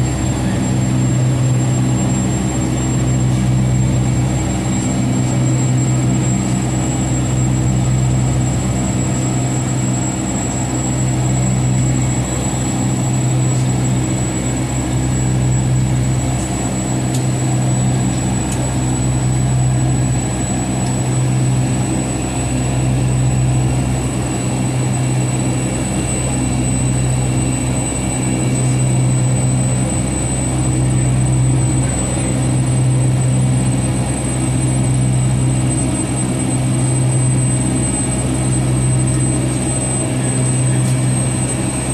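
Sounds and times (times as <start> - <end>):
low hum inside aircraft cabin: 0.0 - 41.9.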